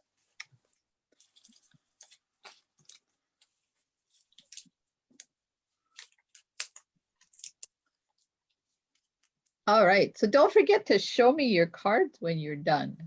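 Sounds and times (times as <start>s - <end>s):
paper rustling: 0.0s - 9.6s.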